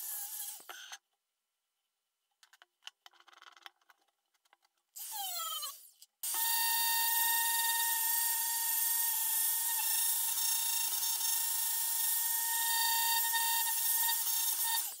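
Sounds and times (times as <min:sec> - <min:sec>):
high-speed power tool whining: 0:05.0 - 0:15.0.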